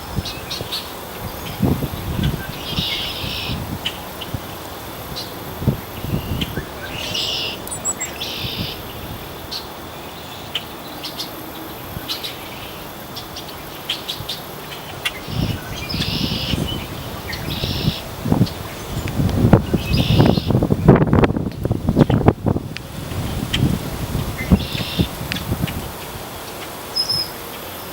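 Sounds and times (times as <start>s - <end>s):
wind rumbling on microphone: 0.0s - 9.6s, 14.9s - 27.2s
harsh bird calls: 13.9s - 21.0s, 23.4s - 25.2s.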